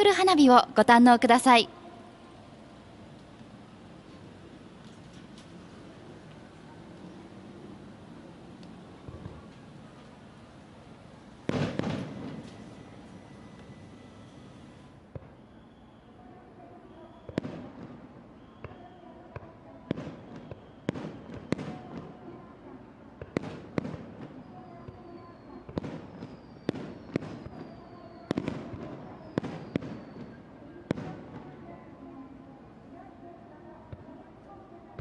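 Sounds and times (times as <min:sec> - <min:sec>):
fireworks bursting bangs: 0:11.3 - 0:15.5, 0:17.2 - 0:22.2, 0:23.2 - 0:31.7
falling firework whistles: 0:11.5 - 0:16.2, 0:16.9 - 0:17.6, 0:18.3 - 0:19.1, 0:20.0 - 0:21.7, 0:24.8 - 0:31.0.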